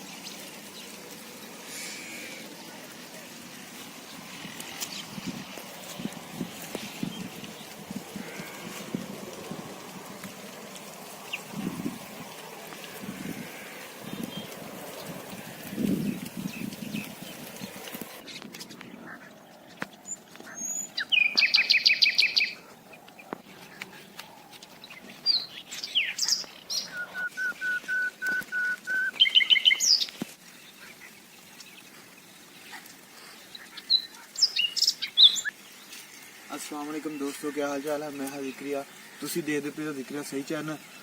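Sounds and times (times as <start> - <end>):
bird chirps: 16.4 - 36.1
bird trilling: 20.4 - 23.0, 25.2 - 30.1.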